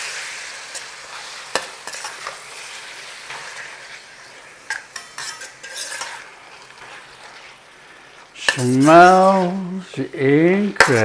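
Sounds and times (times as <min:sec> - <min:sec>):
chicken sizzling in a pan: 0:00.0 - 0:11.0
utensil scraping a pan: 0:00.6 - 0:04.1, 0:04.7 - 0:07.7, 0:08.4 - 0:09.9.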